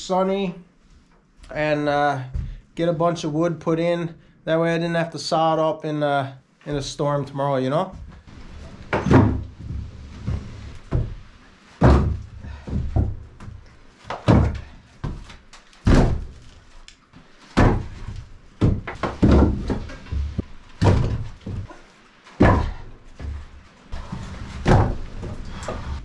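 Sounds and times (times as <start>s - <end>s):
firewood landing on a stack: 8.8s - 11.2s, 11.8s - 25.7s.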